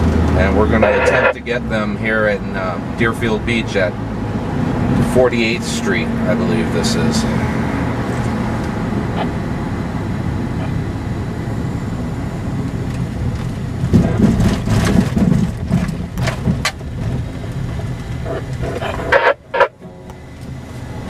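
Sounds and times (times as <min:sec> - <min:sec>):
car rumbling on road: 0:00.0 - 0:21.0
knocks and rattles: 0:13.8 - 0:19.2.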